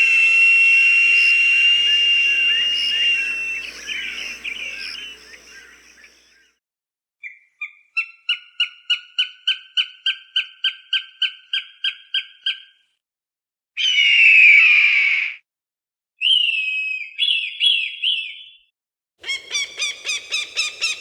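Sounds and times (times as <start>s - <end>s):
falcon harsh scream: 0.0s - 6.1s
falcon kek calls: 0.0s - 6.2s, 19.2s - 21.0s.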